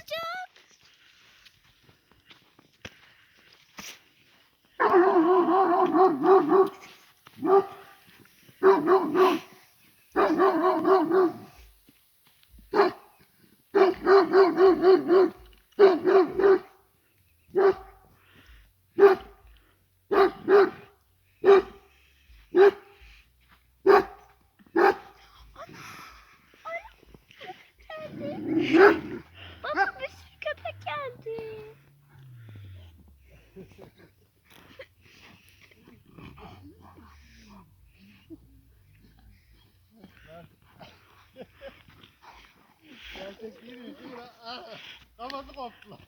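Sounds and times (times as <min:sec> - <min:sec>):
dog barking: 0:04.8 - 0:08.0, 0:08.6 - 0:09.6, 0:10.2 - 0:11.6, 0:12.7 - 0:13.1, 0:13.7 - 0:16.8, 0:17.5 - 0:18.1, 0:19.0 - 0:19.5, 0:20.1 - 0:21.9, 0:22.5 - 0:23.0, 0:23.8 - 0:25.2, 0:28.0 - 0:30.6.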